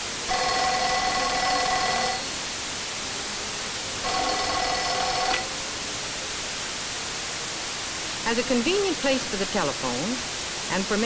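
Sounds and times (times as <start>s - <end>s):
tv static hiss: 0.0s - 11.0s
pitched ringing tone: 0.3s - 2.4s, 4.0s - 5.8s.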